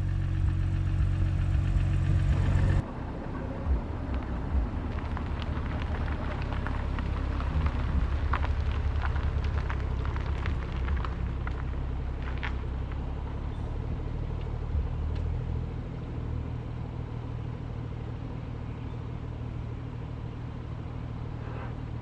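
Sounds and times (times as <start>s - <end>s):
low rumble: 0.0s - 16.8s
car engine idling: 0.0s - 22.0s.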